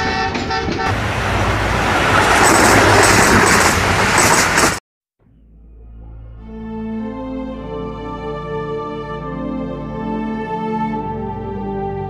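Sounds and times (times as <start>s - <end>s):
train passing at speed: 0.0s - 4.8s
high rhythmic clatter: 2.1s - 4.8s
soft music: 5.6s - 12.0s.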